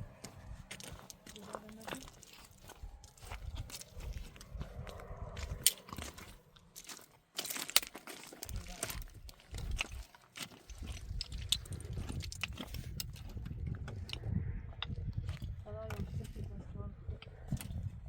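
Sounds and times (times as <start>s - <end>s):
crunching and snapping: 0.6s - 14.5s.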